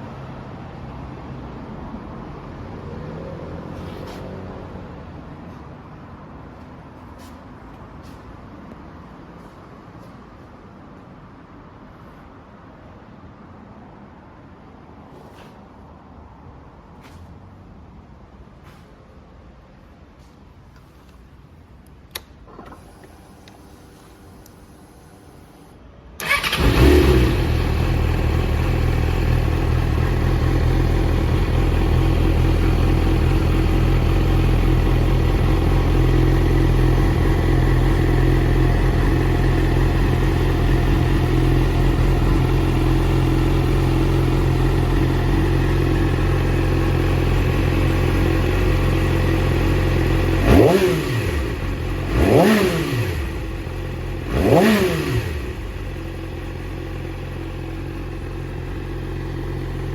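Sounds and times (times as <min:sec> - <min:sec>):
motorcycle engine starting and idling: 0:22.1 - 0:59.9
motorcycle throttle blips: 0:26.2 - 0:59.9.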